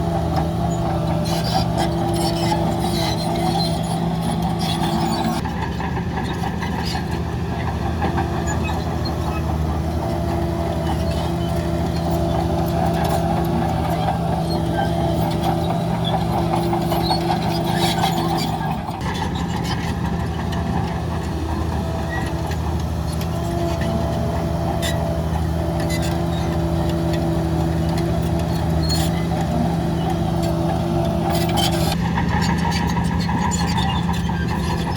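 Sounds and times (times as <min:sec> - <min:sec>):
heavy diesel engine running: 0:00.0 - 0:34.9.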